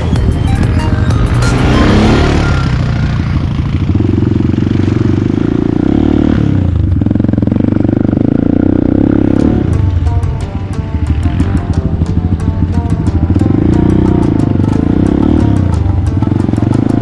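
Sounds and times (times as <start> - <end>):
atv engine revving: 1.3 - 10.0.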